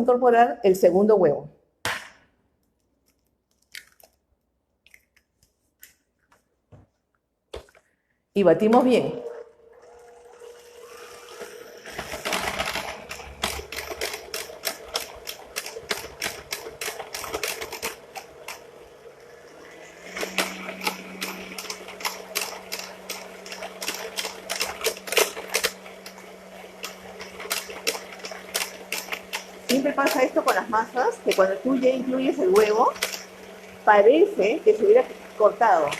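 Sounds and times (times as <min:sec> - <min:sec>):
electric mixer motor hum: 0:08.8 - 0:35.9.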